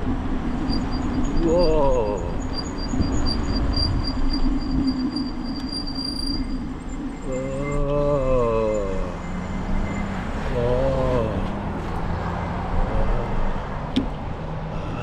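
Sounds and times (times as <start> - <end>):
wind and bicycle road rumble: 0.0 - 15.0
wavering pitched tone: 0.6 - 11.5.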